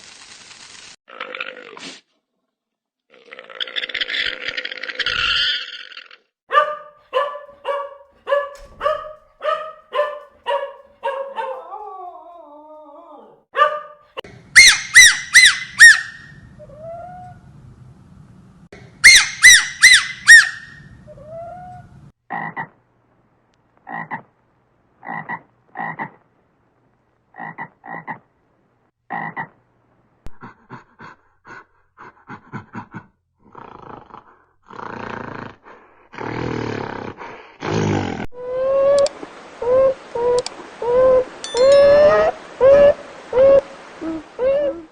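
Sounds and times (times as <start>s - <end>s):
animal calls: 3.4s - 12.4s, 14.6s - 17.4s, 19.0s - 22.8s, 38.4s - 44.9s.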